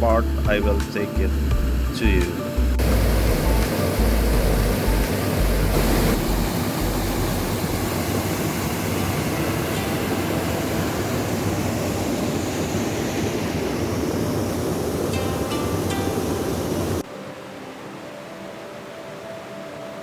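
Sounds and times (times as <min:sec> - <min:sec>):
low rumble: 0:00.0 - 0:08.0.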